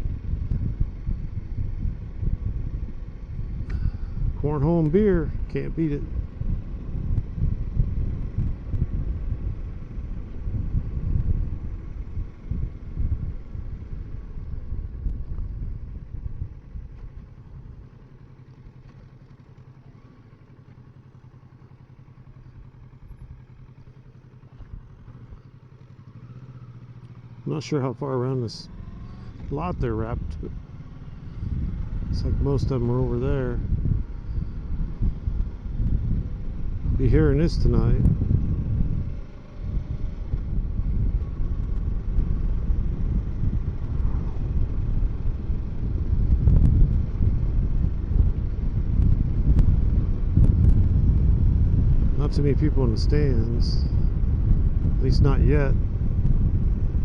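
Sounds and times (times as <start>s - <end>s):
wind noise on microphone: 0.0s - 18.0s, 28.9s - 57.0s
motorcycle engine running: 0.0s - 57.0s.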